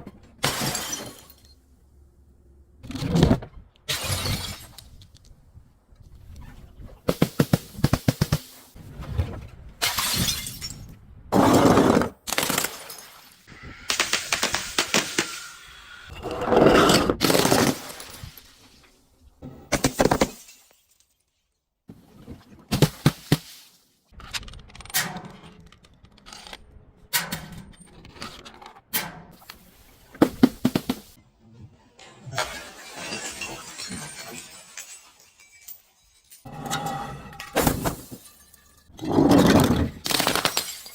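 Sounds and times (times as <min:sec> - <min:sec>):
glass bottles smashing: 0:00.4 - 0:01.6, 0:03.9 - 0:04.9, 0:09.8 - 0:10.9, 0:12.3 - 0:13.4, 0:17.2 - 0:18.6, 0:19.8 - 0:21.2, 0:32.3 - 0:40.9.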